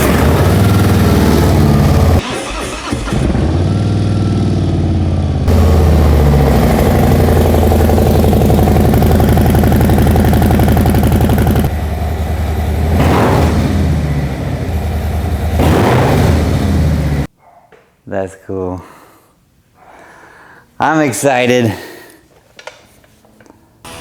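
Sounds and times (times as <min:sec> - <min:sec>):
motorcycle engine idling and revving: 0:00.0 - 0:17.3.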